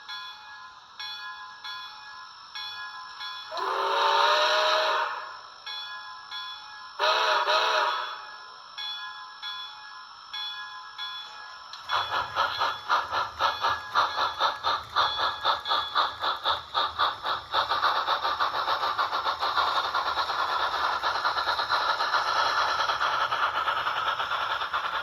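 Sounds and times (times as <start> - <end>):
steam locomotive chuffing from speaker: 3.1 - 5.8, 7.0 - 8.8, 11.5 - 25.0.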